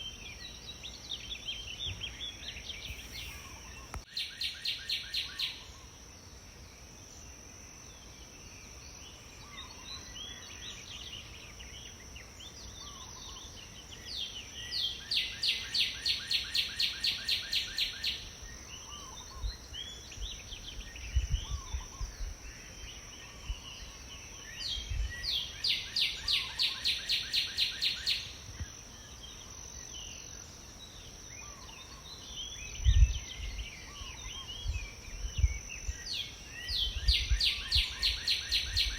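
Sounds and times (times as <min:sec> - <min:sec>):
birds chirping: 0:01.4 - 0:04.4.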